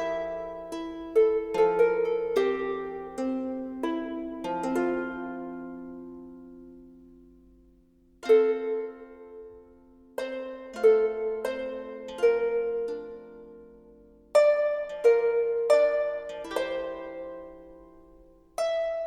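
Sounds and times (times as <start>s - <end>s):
plucked harp-like melody: 0.0s - 19.0s.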